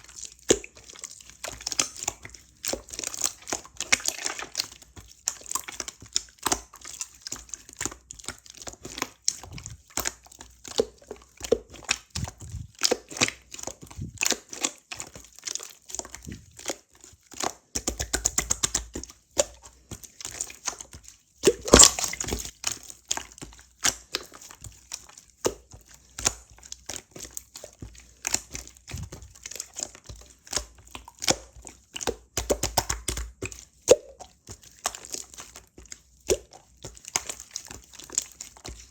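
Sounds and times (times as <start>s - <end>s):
slime crackling and popping: 21.4s - 22.6s.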